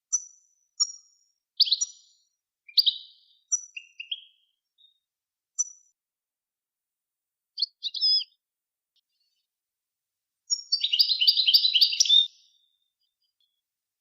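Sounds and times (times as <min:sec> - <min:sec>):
songbird call notes: 0:01.6 - 0:05.0, 0:07.6 - 0:08.4, 0:10.5 - 0:13.6
songbird trilled phrase: 0:10.6 - 0:12.6.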